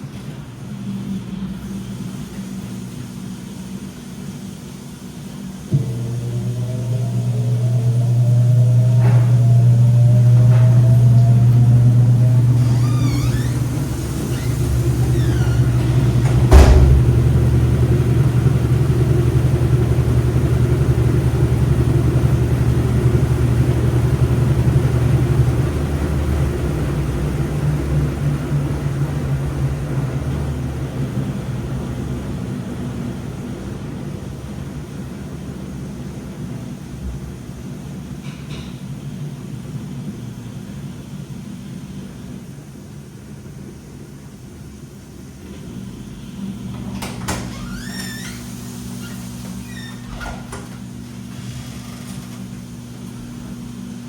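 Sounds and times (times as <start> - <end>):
washing machine motor whine: 0.0 - 54.0
low hum: 5.7 - 27.4.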